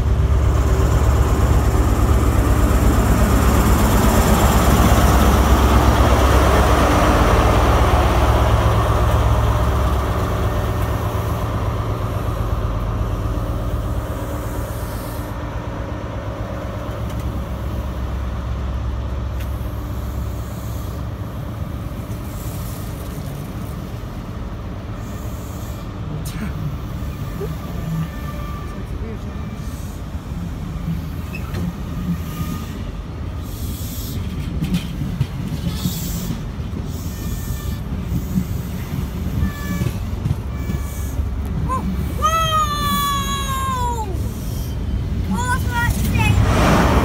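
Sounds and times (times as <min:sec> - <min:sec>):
diesel engine: 0:00.0 - 0:28.1, 0:40.0 - 0:47.0
train coaches rolling on rails: 0:00.0 - 0:47.0.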